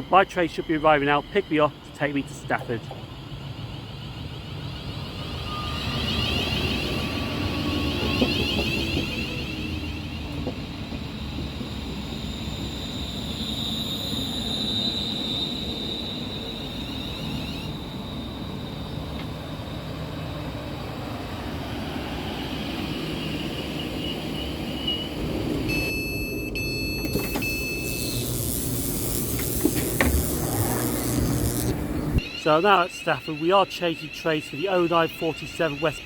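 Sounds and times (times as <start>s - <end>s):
electric train rumble and whine: 0.0s - 36.0s
short high electronic tones: 25.7s - 36.0s.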